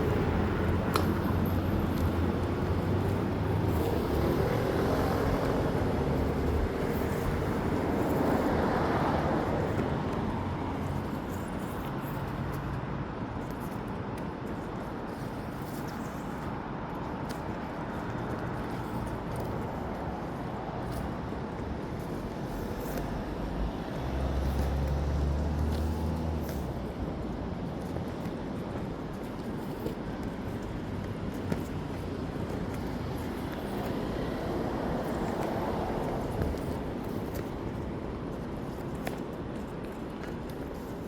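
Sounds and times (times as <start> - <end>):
hum of traffic: 0.0 - 41.0.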